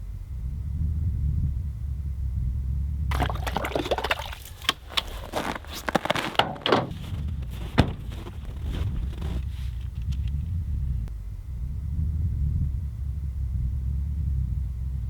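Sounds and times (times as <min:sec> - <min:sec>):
rustling and clicking handling: 0:04.0 - 0:10.4.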